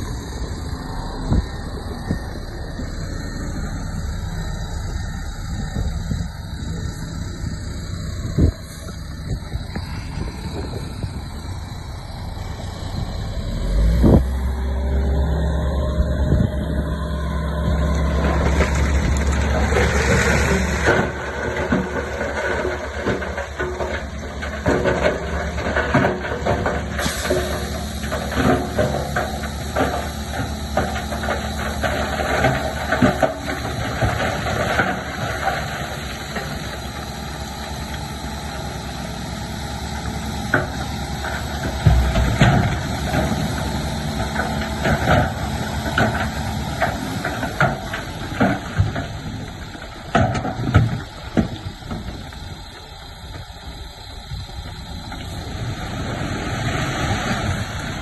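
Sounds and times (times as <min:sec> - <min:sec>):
bulldozer diesel engine running: 0:00.0 - 0:58.0
rock and steel clanking: 0:40.4 - 0:54.8.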